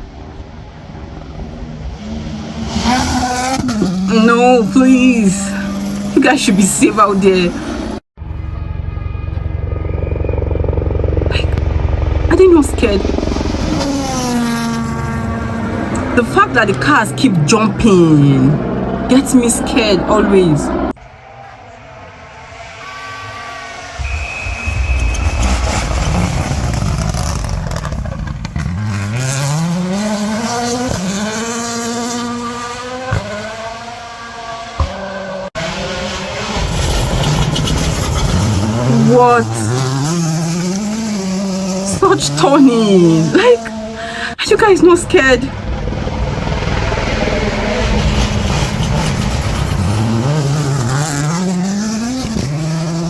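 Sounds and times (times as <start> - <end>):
rally car engine accelerating: 0.0 - 44.3, 45.0 - 53.0
gravel noise: 23.6 - 29.6, 35.6 - 53.0.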